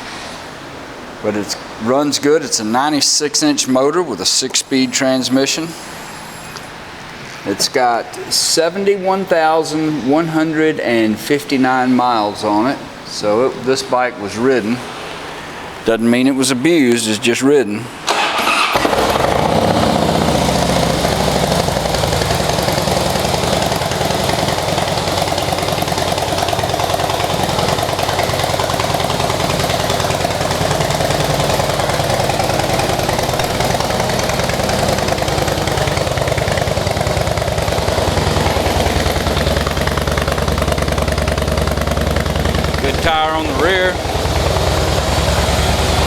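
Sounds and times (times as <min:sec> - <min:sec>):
motorcycle engine idling: 0:18.1 - 0:46.0.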